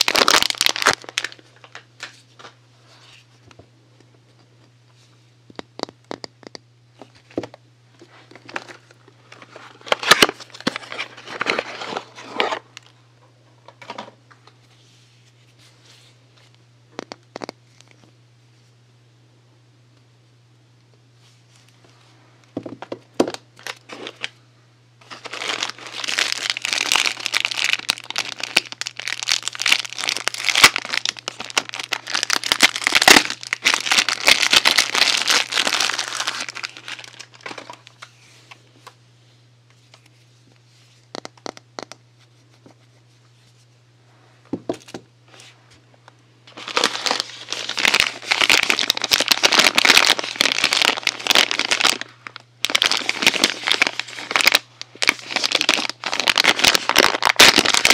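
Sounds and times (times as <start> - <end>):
packaging crinkling: 0.0 - 3.2, 8.2 - 12.9, 23.2 - 24.4, 25.0 - 38.6, 46.5 - 57.9
steady low hum: 0.0 - 57.9.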